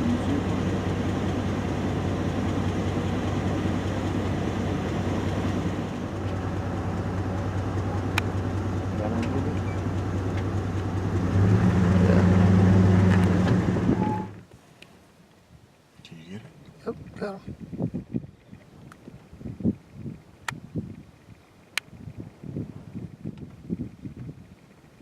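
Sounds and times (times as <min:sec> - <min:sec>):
vehicle engine idling: 0:00.0 - 0:14.5.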